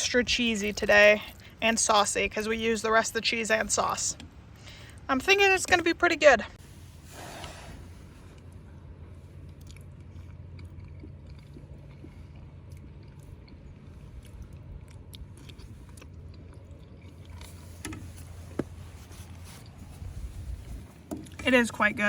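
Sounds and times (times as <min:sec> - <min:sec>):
person chewing: 0:08.1 - 0:21.4
low wind rumble: 0:11.5 - 0:22.0.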